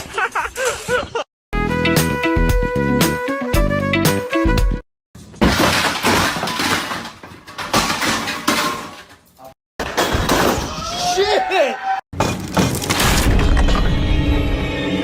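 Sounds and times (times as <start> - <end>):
pieces clattering: 5.2 - 10.5, 12.2 - 13.9
glass shattering crash: 5.4 - 9.2, 12.2 - 14.0.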